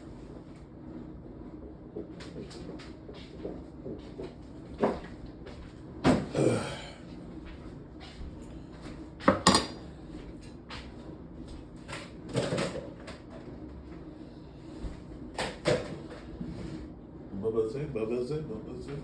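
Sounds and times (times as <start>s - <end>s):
cookware clattering and banging: 9.3s - 9.8s.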